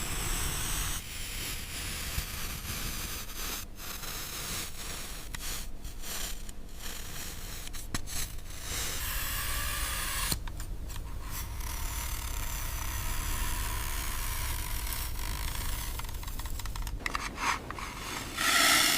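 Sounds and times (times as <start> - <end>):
toy vehicle scraping through sand: 11.4 - 18.9.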